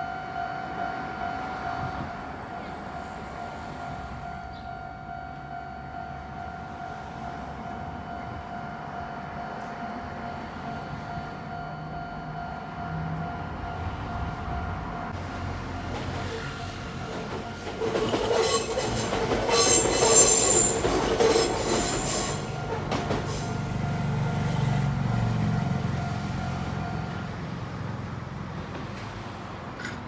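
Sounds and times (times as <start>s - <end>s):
train rumbling: 0.3s - 30.0s
train wheels squealing: 16.1s - 24.4s.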